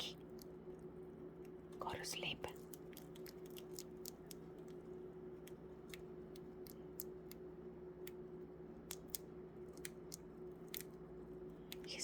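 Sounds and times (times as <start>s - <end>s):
faint steady hum: 0.0s - 12.0s
budgies clicking in cage: 2.5s - 4.8s, 8.8s - 11.0s.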